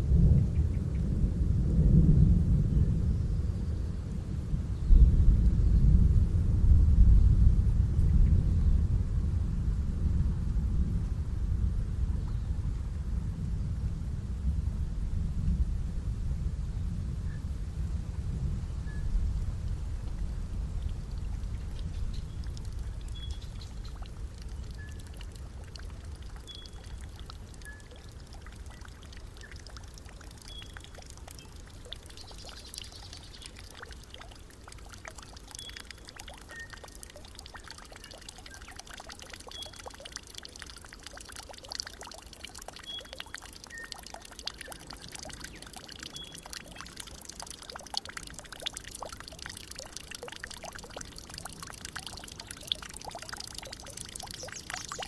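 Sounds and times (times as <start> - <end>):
water trickling and splashing: 18.8 - 55.0.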